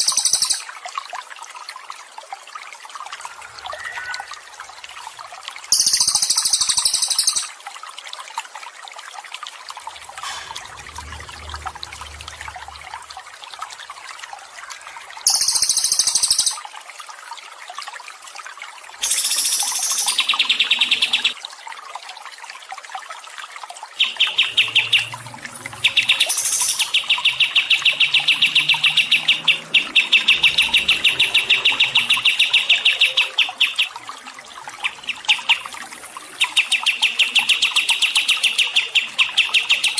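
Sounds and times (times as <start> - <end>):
songbird song: 0.0 - 0.7, 3.2 - 7.5, 14.5 - 16.6, 19.0 - 21.4, 24.0 - 39.9
trickle of water: 0.0 - 39.9.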